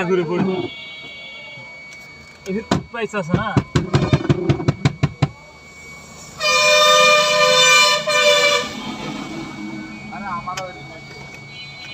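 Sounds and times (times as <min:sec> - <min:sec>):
two-note vehicle horn: 0:00.4 - 0:01.9, 0:06.4 - 0:09.9.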